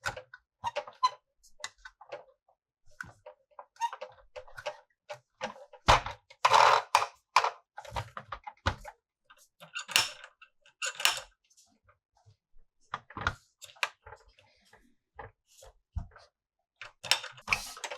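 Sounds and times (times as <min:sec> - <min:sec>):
plastic toy pieces clicking: 0:06.5 - 0:07.6, 0:09.8 - 0:10.2.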